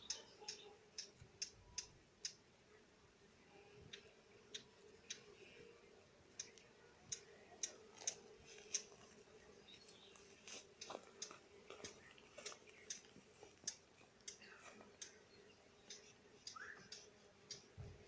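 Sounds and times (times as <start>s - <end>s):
faint bird chirps: 0.0s - 8.2s, 13.7s - 18.0s.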